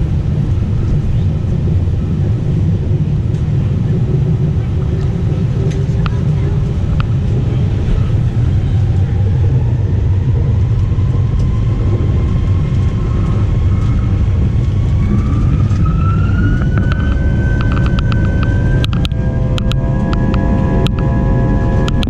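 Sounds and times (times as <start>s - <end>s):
airplane cabin engine rumble: 0.0s - 22.0s
jet engine whine: 0.0s - 22.0s.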